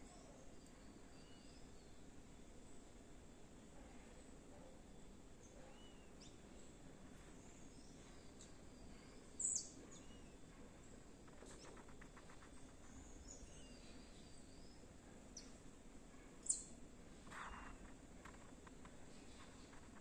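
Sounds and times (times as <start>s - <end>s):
faint bird calls: 5.4s - 6.5s, 16.1s - 20.0s.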